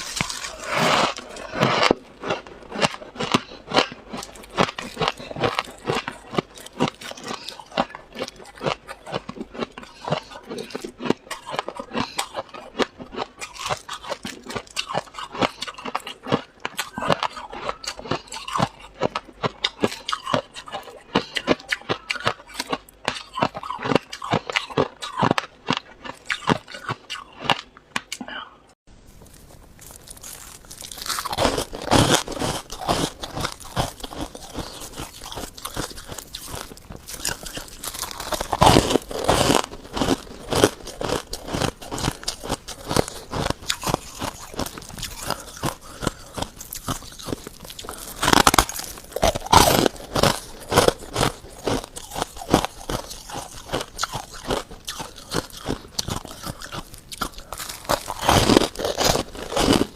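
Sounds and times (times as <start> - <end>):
frost being bitten and chewed: 0.0 - 28.3, 29.1 - 59.9.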